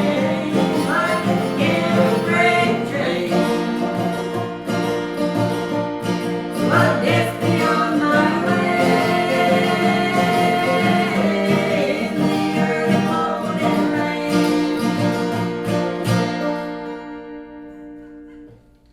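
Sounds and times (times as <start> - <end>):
person singing: 0.0 - 4.8, 6.6 - 15.4
acoustic guitar strumming: 0.0 - 18.9.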